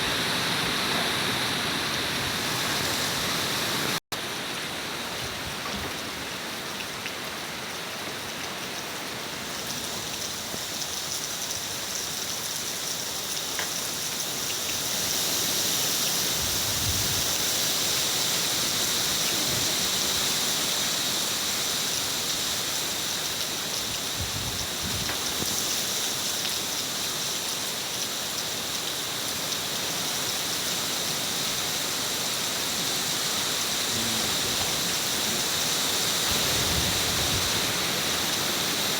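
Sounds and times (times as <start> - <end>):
heavy rain: 0.0 - 38.9
wind gust rumbles: 34.2 - 38.1.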